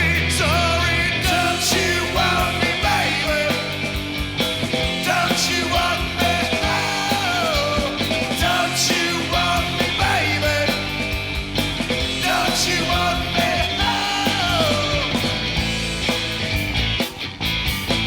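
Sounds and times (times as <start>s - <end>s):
rock band playing loudly: 0.0s - 18.0s.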